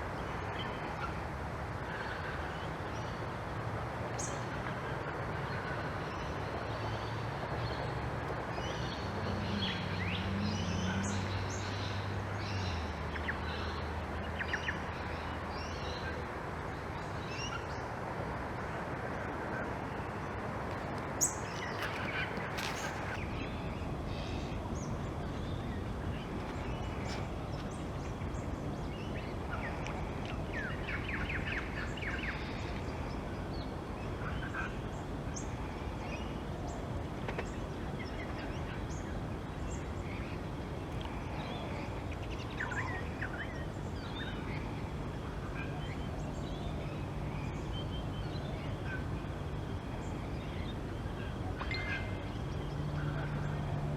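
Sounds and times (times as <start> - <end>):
birds calling: 20.0 - 53.8
birds chattering: 20.7 - 33.2.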